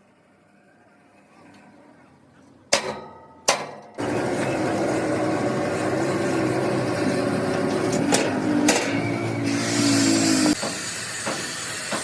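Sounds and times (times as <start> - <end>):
sharp metallic knocks: 2.7 - 4.0
loud steady machine noise: 4.0 - 12.0.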